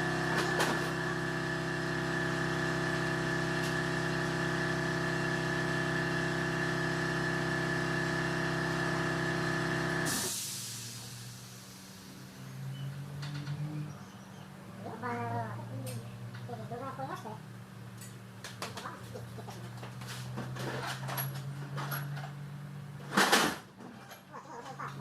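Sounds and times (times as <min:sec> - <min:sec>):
engine running steadily: 0:00.0 - 0:25.0
short hiss: 0:10.2 - 0:11.7.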